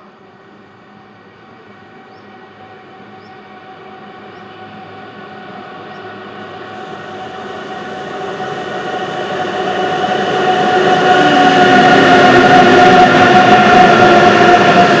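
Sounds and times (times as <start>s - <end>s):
train rumble: 2.6s - 15.0s
traction motors whining: 6.3s - 15.0s.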